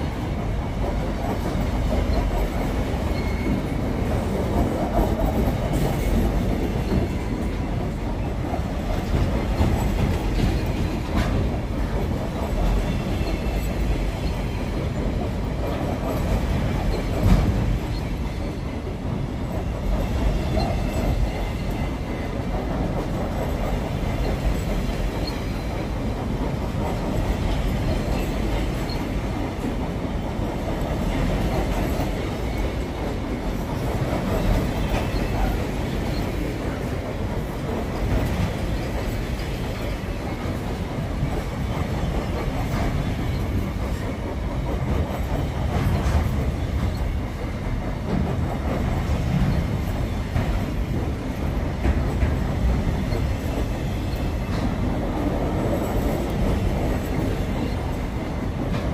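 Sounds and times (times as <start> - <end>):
freight wagons rumbling on rails: 0.0 - 58.9.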